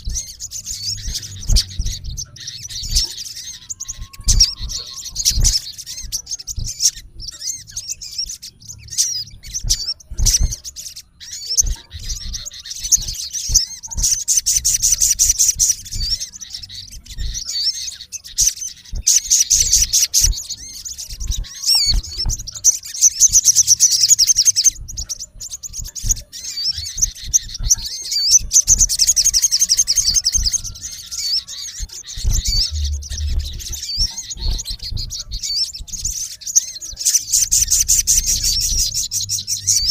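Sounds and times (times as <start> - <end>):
bird chirps and whistles: 0.0 - 39.9
buzzy bird trills: 0.0 - 39.9.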